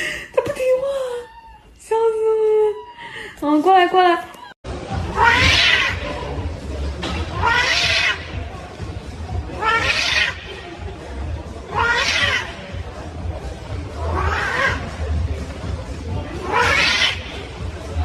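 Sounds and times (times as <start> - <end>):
cat meowing loudly: 5.1 - 6.0, 7.4 - 8.3, 9.6 - 10.4, 11.7 - 12.5, 14.1 - 14.8, 16.4 - 17.2.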